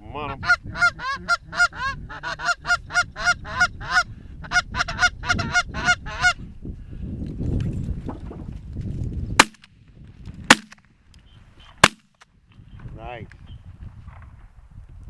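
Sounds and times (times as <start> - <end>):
low wind noise: 0.0 - 15.0.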